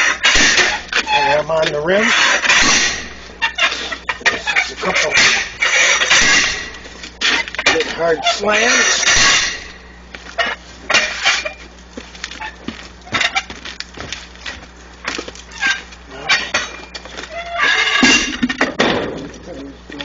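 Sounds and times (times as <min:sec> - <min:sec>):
heavy metallic clanks: 0:00.0 - 0:11.6, 0:15.6 - 0:19.3.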